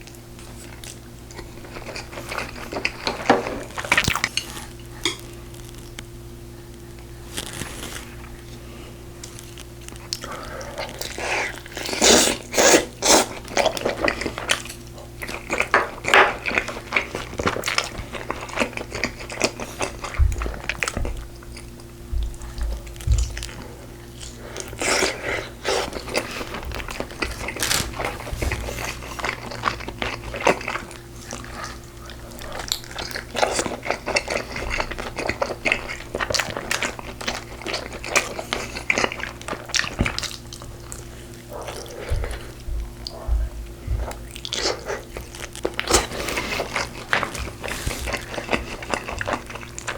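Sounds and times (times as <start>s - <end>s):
wet chewing and smacking: 0.0s - 6.1s, 9.2s - 49.9s
low steady hum: 0.0s - 49.9s
crunches while eating: 7.2s - 8.4s, 22.3s - 49.9s.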